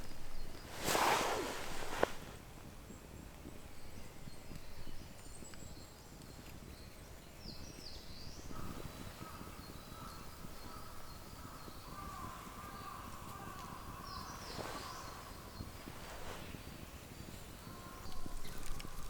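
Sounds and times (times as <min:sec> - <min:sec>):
faint bird calls: 0:00.0 - 0:02.4, 0:08.0 - 0:19.0.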